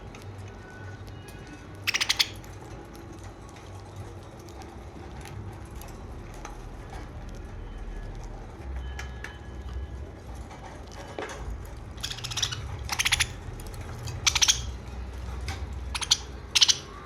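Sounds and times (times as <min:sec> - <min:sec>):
budgerigar chirps: 0:01.8 - 0:02.4, 0:12.0 - 0:13.4, 0:14.0 - 0:14.8, 0:15.9 - 0:17.0.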